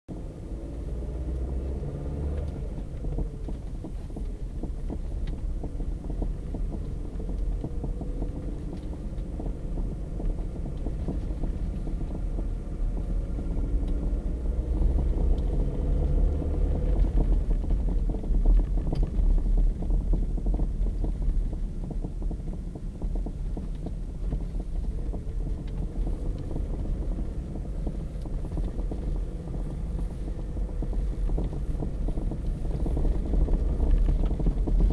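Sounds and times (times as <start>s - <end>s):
car road rumble: 0.1s - 34.9s.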